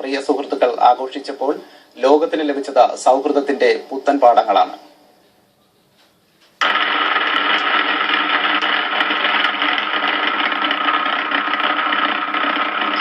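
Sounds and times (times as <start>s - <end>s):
motorcycle engine running: 6.6s - 13.0s.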